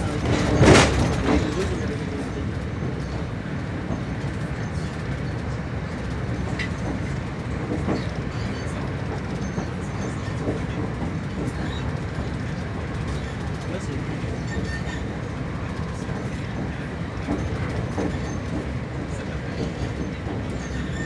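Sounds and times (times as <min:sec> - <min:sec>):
faint wheel clicks on rails: 0:00.0 - 0:21.0
train rumble inside carriage: 0:00.0 - 0:21.0.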